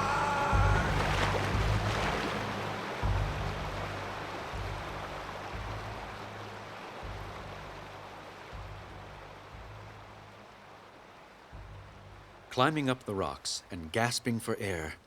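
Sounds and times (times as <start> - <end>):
deep low rumbles: 0.0 - 2.2, 3.0 - 6.2
waterfall roaring: 0.0 - 8.6, 12.5 - 15.0.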